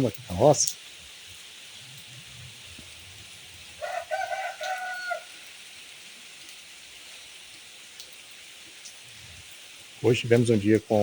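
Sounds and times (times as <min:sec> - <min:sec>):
light rain hiss: 0:00.0 - 0:11.0
rooster crowing: 0:03.8 - 0:05.6.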